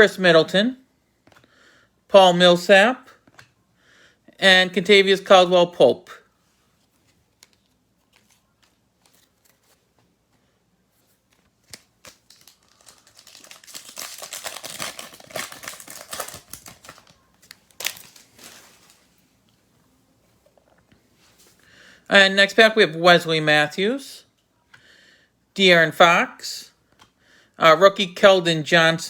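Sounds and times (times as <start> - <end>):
wrapper crinkling: 11.3 - 19.2
foil pack being torn open: 11.7 - 19.0
sharp foil crackle: 11.7 - 19.1.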